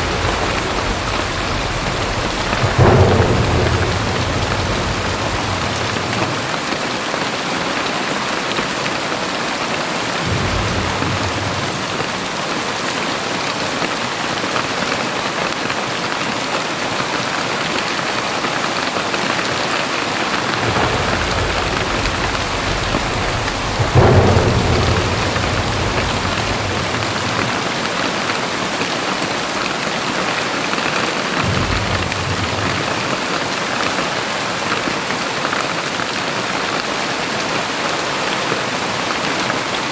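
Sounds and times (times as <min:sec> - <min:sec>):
thunder rumbling: 0:00.0 - 0:07.9, 0:09.8 - 0:13.1, 0:19.2 - 0:29.5, 0:30.8 - 0:34.8
thunder crack: 0:00.0 - 0:08.1, 0:09.2 - 0:13.1, 0:19.2 - 0:29.6, 0:30.8 - 0:36.1
heavy rain falling: 0:00.0 - 0:39.9.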